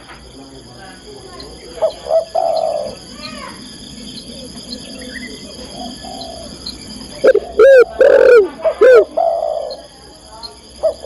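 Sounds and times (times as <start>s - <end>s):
insect chirring: 0.0s - 11.0s
dove cooing: 1.7s - 9.9s, 10.8s - 11.0s.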